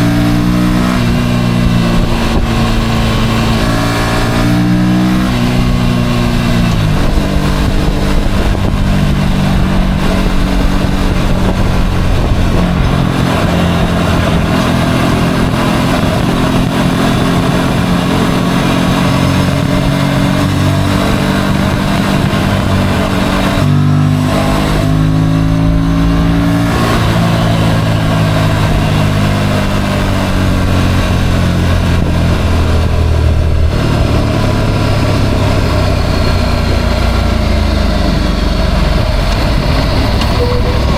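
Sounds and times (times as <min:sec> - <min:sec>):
motorcycle engine running: 0:00.0 - 0:40.9
steady rushing noise: 0:00.0 - 0:40.9.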